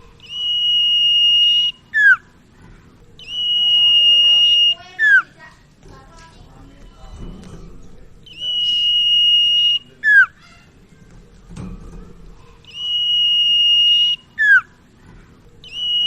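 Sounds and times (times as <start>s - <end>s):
bird singing high whistle: 0.2s - 2.3s, 3.2s - 5.3s, 8.2s - 10.4s, 12.7s - 14.8s, 15.6s - 16.0s.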